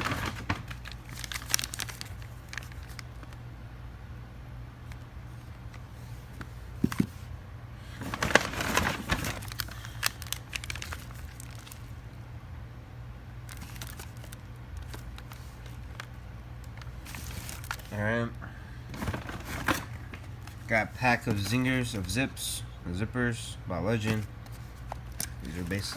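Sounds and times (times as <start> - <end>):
packaging crinkling: 0.0 - 3.4, 7.9 - 12.0, 13.4 - 18.1, 18.8 - 22.1, 24.0 - 25.9
steady low hum: 0.0 - 25.9.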